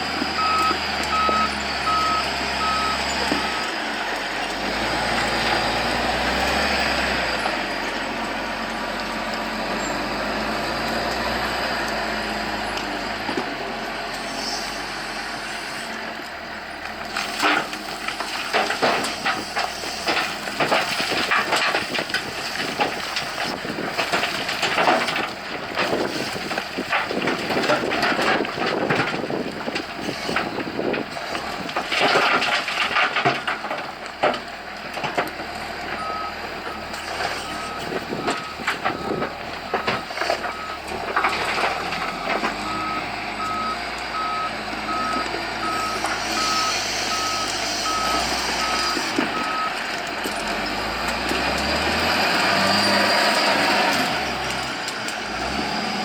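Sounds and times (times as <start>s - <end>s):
diesel engine under load: 0.0s - 56.0s
reversing alarm beeping: 0.1s - 3.8s, 36.0s - 36.4s, 37.4s - 40.9s, 42.0s - 49.8s
loud clattering knocks and crashes: 17.2s - 36.0s.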